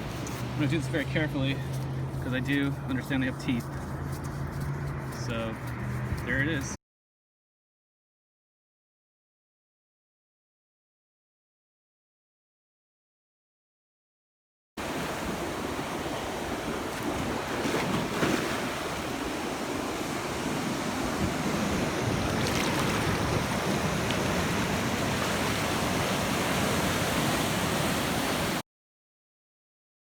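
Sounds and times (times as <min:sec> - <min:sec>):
ocean surf washing onto beach: 0:14.8 - 0:28.6
wind buffeting microphone: 0:18.8 - 0:28.1.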